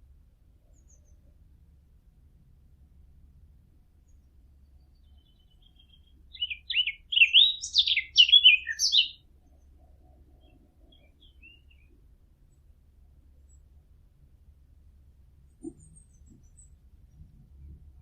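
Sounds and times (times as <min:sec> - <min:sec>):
warbler singing: 0:04.6 - 0:09.6, 0:10.4 - 0:12.0.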